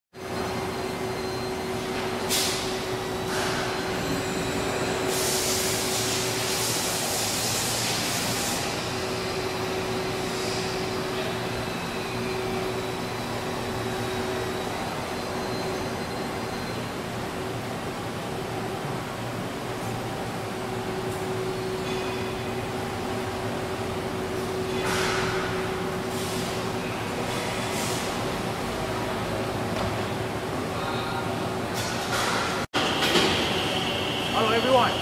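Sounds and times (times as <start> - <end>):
machinery humming: 0.2 - 35.0
air hissing: 5.0 - 9.0.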